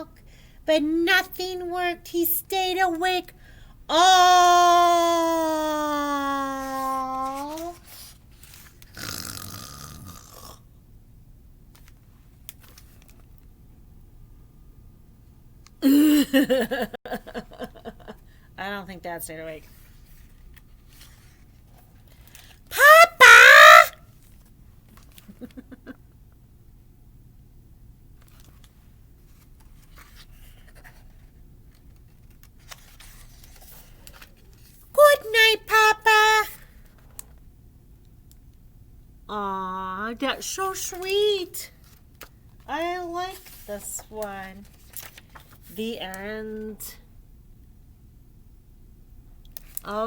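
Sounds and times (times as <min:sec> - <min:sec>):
low steady hum: 0:00.0 - 0:09.0, 0:10.5 - 0:23.0, 0:36.5 - 0:50.0
book pages turning: 0:06.7 - 0:09.0, 0:11.7 - 0:13.5, 0:19.6 - 0:22.7, 0:28.2 - 0:34.8, 0:43.3 - 0:45.8
paper rustling: 0:06.7 - 0:09.0, 0:19.6 - 0:22.7, 0:28.2 - 0:34.8, 0:43.3 - 0:45.8
person snoring: 0:09.0 - 0:10.7.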